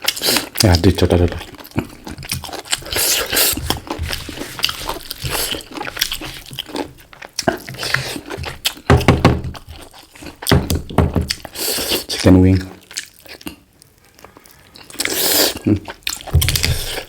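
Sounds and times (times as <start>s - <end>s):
chewing chicken: 0.0s - 8.9s, 11.3s - 17.0s
small bones crunching: 0.0s - 11.6s.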